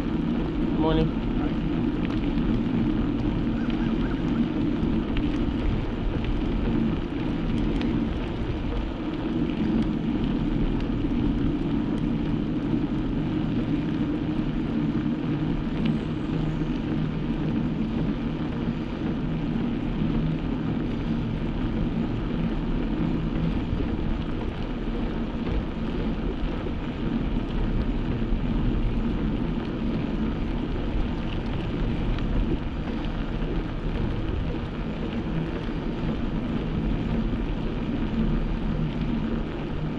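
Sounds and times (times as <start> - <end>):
bike road noise: 0.0 - 39.9
faint low drone: 0.0 - 39.9
wind: 0.0 - 39.9.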